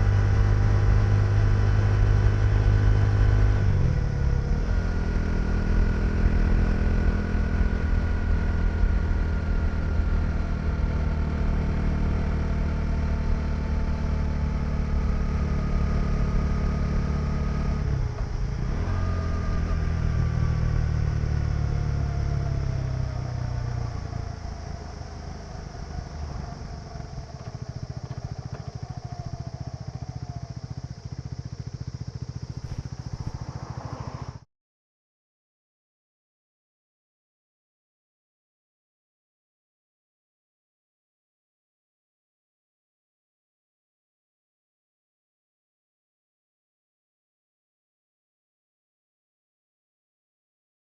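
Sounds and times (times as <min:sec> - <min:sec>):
motorcycle engine running: 0:00.0 - 0:34.5.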